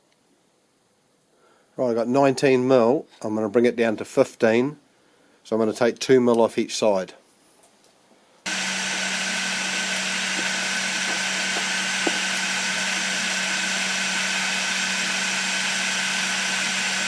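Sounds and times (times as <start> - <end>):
milling machine spindle running: 8.5 - 17.0.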